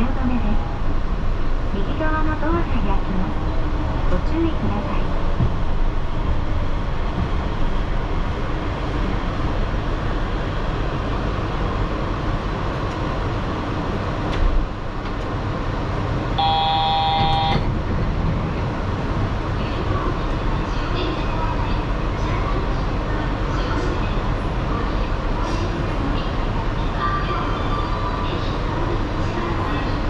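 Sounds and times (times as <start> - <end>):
train rumbling: 0.0 - 30.0
short electronic beep: 16.4 - 17.6.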